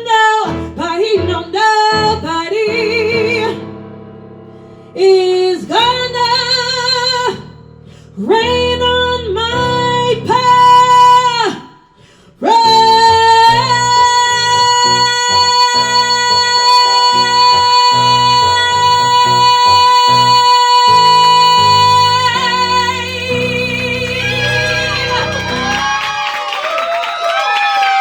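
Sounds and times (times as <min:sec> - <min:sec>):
keyboard accompaniment: 0:00.0 - 0:11.5, 0:12.7 - 0:26.2
woman belting a show tune: 0:12.4 - 0:26.0.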